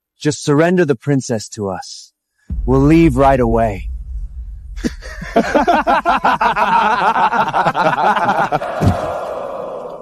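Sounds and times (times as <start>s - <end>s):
people laughing mockingly: 4.8s - 9.5s.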